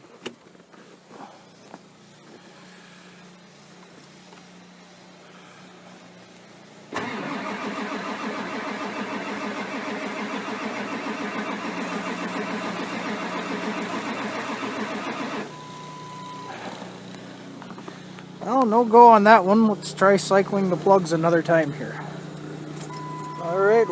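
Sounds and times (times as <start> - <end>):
diesel engine cranking on starter: 6.9 - 18.8, 19.6 - 23.9.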